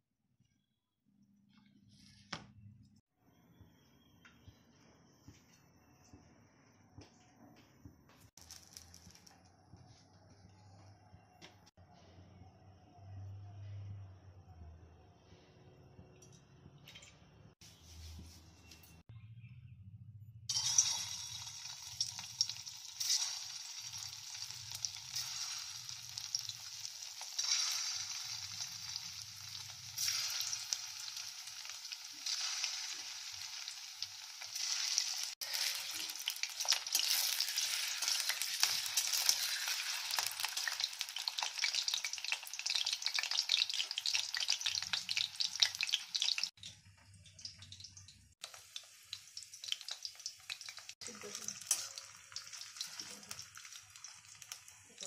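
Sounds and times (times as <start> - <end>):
food sizzling in hot oil: 8.3 - 9.4, 20.5 - 55.0.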